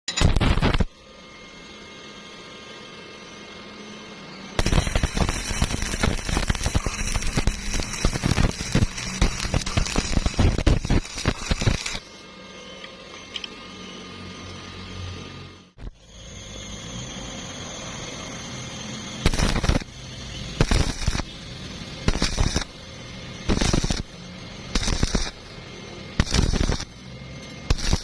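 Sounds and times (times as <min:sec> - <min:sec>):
welding arc crackling: 0:00.1 - 0:01.0, 0:04.6 - 0:12.2, 0:17.8 - 0:28.0.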